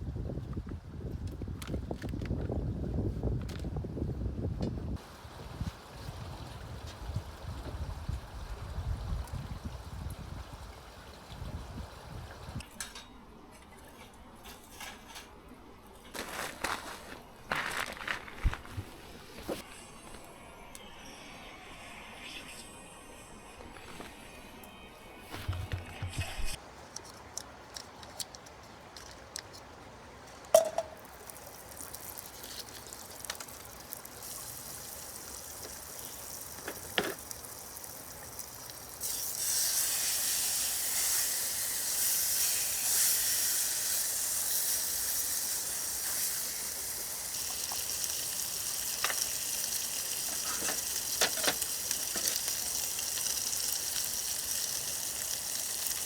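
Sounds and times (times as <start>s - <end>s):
food sizzling in a pan: 34.1s - 56.0s.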